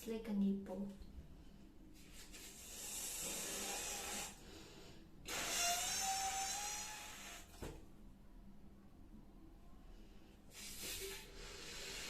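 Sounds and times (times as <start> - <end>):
hissing blows into condom: 2.2 - 4.4, 5.2 - 7.7, 10.5 - 12.0.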